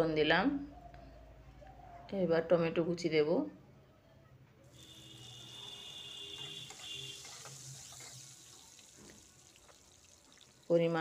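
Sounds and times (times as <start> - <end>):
tomato sizzling in hot oil: 4.8 - 11.0
metal spatula scraping: 5.3 - 8.6.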